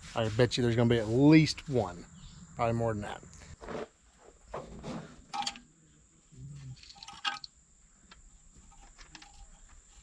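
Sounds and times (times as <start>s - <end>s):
faint handling clicks and knocks: 6.8s - 10.0s.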